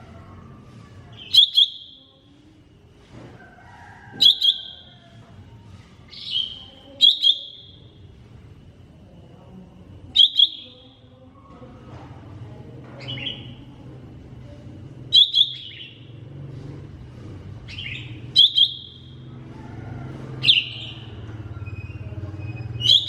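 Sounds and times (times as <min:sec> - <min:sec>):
faint bird chirps: 0:06.0 - 0:08.0.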